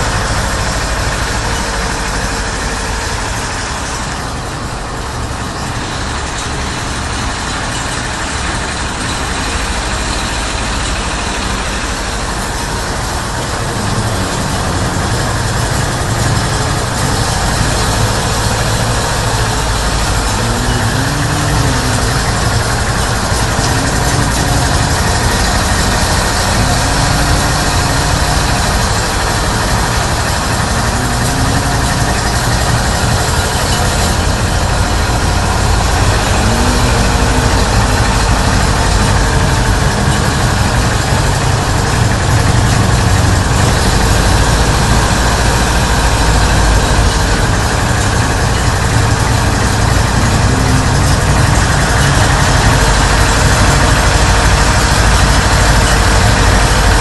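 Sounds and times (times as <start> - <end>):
engine idling drone: 0.0 - 57.0.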